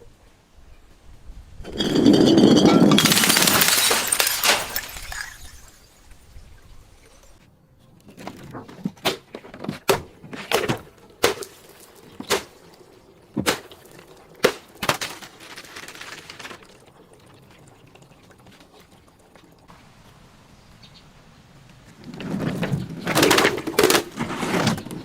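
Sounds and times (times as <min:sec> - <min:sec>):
sharp cracks of crushing: 0:02.9 - 0:05.8.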